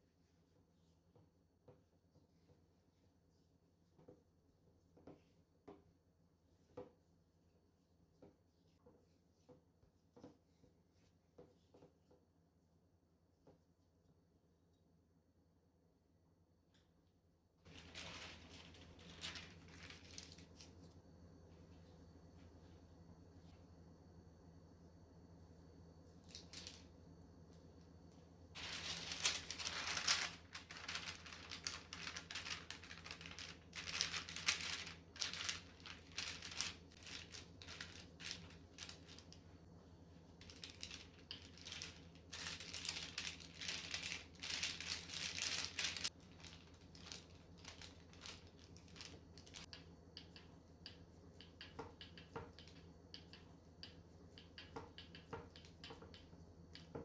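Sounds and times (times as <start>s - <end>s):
scraping and crinkling: 17.7s - 20.9s, 26.2s - 26.9s, 28.5s - 39.5s, 40.3s - 49.7s.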